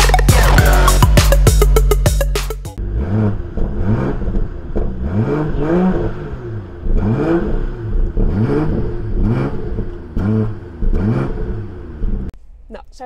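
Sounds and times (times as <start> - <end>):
car engine revving: 0.0 - 12.3.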